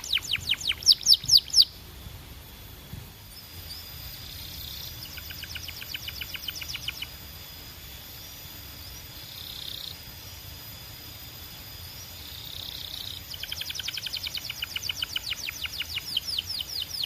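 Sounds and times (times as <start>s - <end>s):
canary trilling: 0.0s - 1.8s, 3.7s - 7.2s, 12.5s - 17.0s
faint bird chirps: 0.0s - 1.9s, 3.2s - 7.5s, 8.7s - 10.6s, 11.8s - 17.0s
low background hum: 0.0s - 17.0s.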